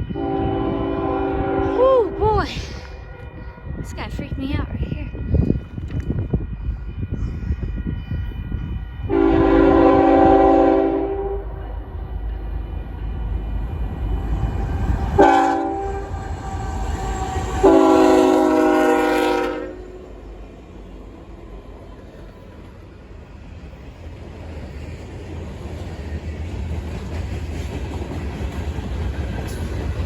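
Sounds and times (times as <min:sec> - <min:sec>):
locomotive air horn blasts: 0:00.0 - 0:02.3, 0:08.9 - 0:11.6, 0:15.1 - 0:20.1
passing train rumble: 0:00.0 - 0:30.0.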